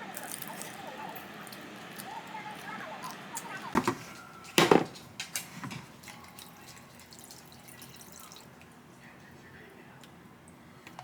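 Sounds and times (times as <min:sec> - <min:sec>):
kitchen knocks and clatters: 0:03.8 - 0:06.1
water dripping: 0:06.0 - 0:08.8.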